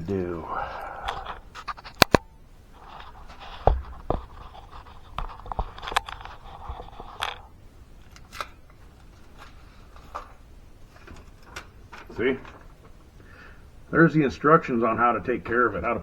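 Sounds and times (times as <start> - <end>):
faint scraping: 0.0 - 7.6.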